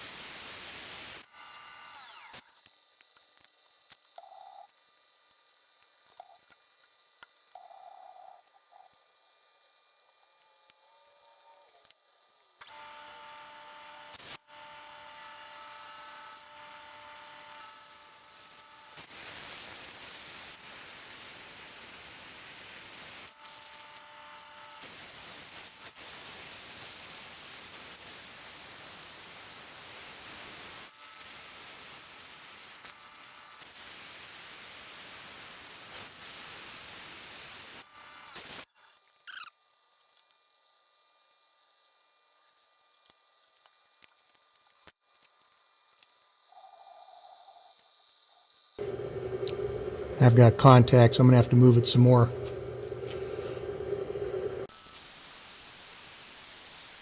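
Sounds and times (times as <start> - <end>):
milling machine whine: 48.8 - 54.7.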